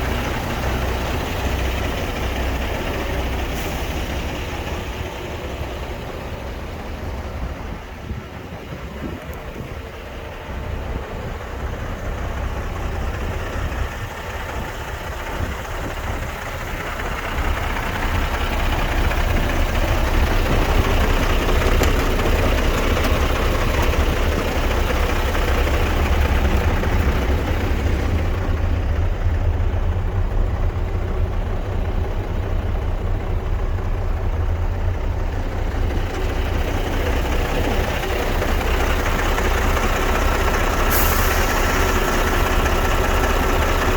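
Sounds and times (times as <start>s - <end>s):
truck diesel engine running: 0.0s - 43.9s.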